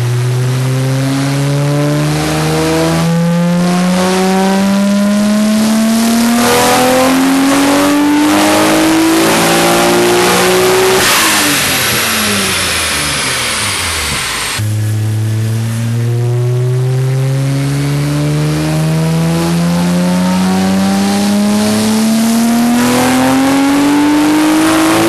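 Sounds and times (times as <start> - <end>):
car engine at full throttle: 0.0 - 25.0
turbo whine winding down: 6.7 - 25.0.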